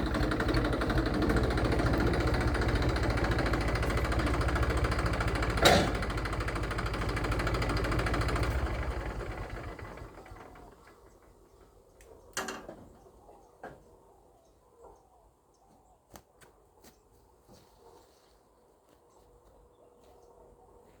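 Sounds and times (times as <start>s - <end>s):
tractor diesel engine running: 0.0s - 11.7s.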